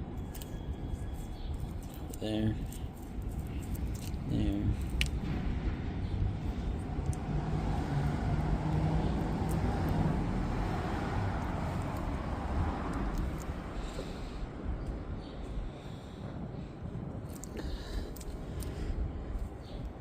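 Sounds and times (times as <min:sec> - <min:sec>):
wind rumble on microphone: 0:00.0 - 0:20.0
vehicle passing by: 0:05.2 - 0:14.8.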